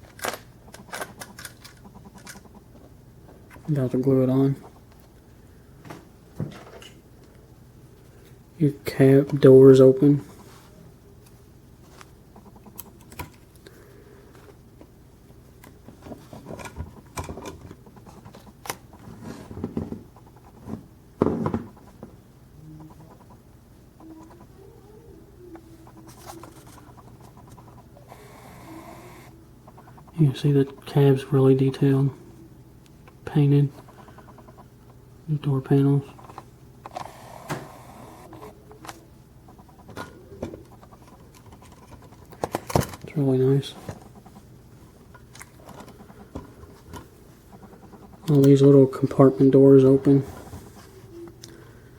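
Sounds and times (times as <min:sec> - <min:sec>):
toy truck model clicking and rattling: 0:00.1 - 0:02.6.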